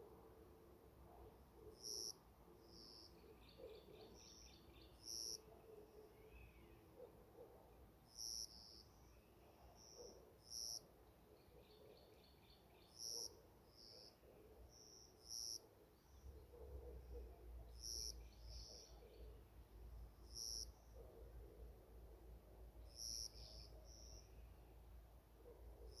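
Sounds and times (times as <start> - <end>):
small birds calling: 20.3 - 21.0.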